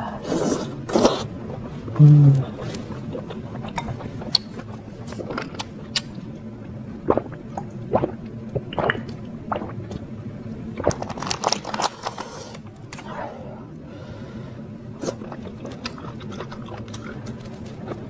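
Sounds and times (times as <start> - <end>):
brief low hum: 1.9 - 2.8
chewing and slurping noodles: 15.0 - 18.0.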